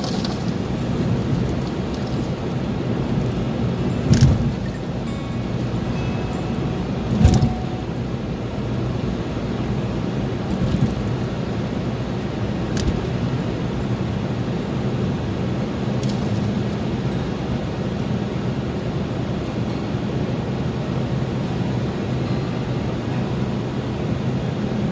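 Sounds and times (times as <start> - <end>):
car engine and road noise: 0.0 - 24.9
short thumps: 7.1 - 7.6.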